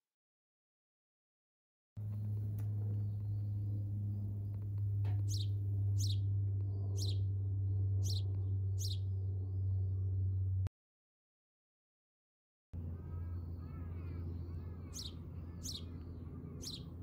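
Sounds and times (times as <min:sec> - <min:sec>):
steady low hum: 0:02.0 - 0:10.7, 0:12.8 - 0:17.0.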